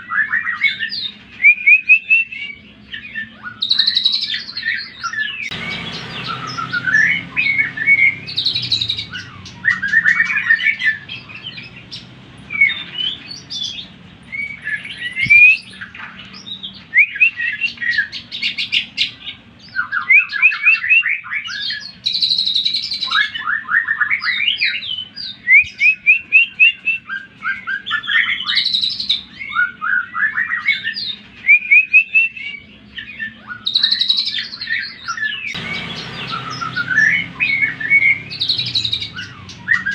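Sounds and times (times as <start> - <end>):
bird singing whistled phrases: 0.1 - 11.8, 12.5 - 18.8, 19.7 - 39.9.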